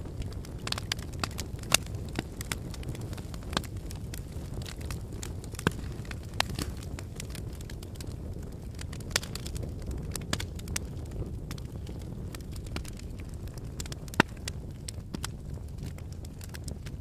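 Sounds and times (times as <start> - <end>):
fire crackling and popping: 0.0 - 17.0
low rumble of flames: 0.0 - 17.0.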